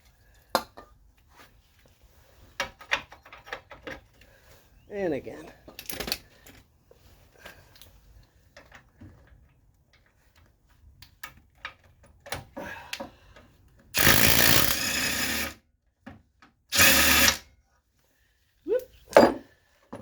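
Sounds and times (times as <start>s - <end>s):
impact wrench hammering: 14.0s - 15.5s, 16.7s - 17.4s.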